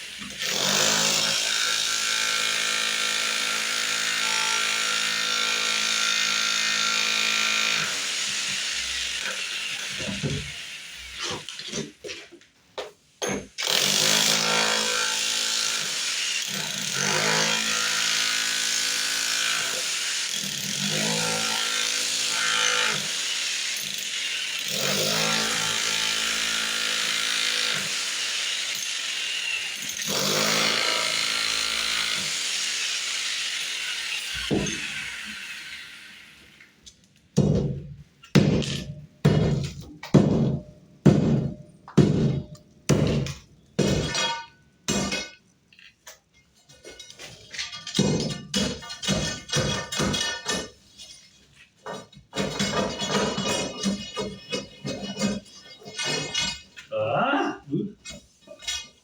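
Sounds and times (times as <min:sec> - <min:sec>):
power tool cutting masonry: 0:00.0 - 0:11.8, 0:13.6 - 0:36.6
sharp knocks: 0:37.4 - 0:44.2.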